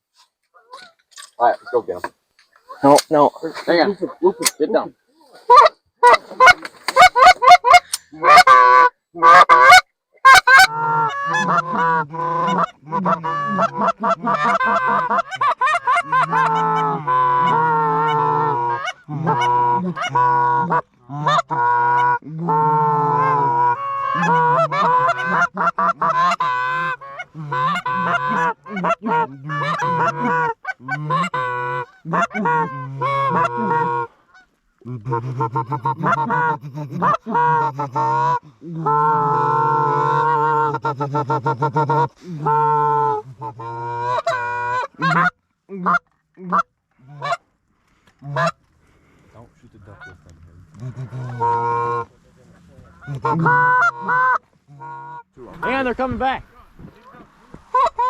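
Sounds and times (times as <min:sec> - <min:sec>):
geese honking and clucking: 0:00.0 - 0:58.0.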